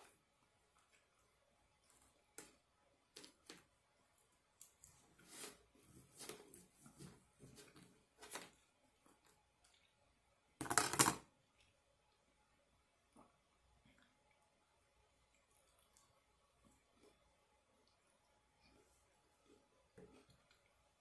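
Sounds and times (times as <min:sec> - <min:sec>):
soft rustles: 0:04.8 - 0:09.2.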